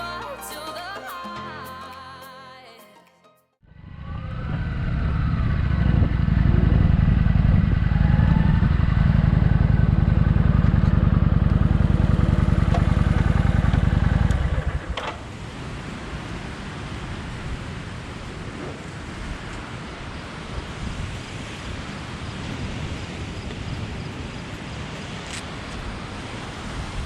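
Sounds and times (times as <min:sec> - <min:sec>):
motorcycle engine rumble: 0:03.7 - 0:15.5.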